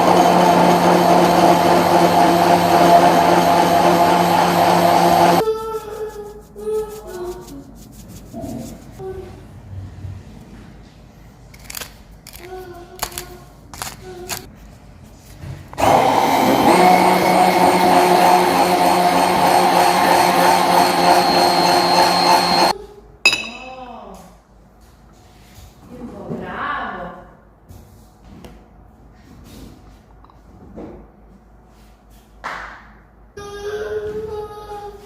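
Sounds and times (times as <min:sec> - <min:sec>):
blender motor running: 0:00.0 - 0:05.4, 0:15.8 - 0:22.7.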